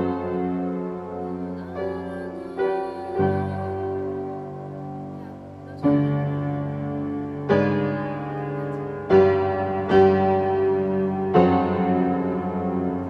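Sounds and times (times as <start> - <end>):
slow solo piano chords: 0.0 - 13.0.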